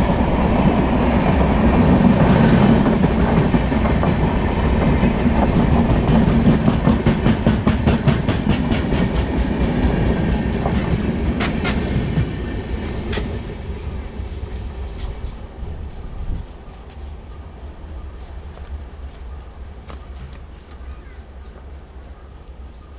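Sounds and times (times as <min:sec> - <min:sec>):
train wheels clattering over rail joints: 0:04.8 - 0:12.4, 0:13.0 - 0:13.4.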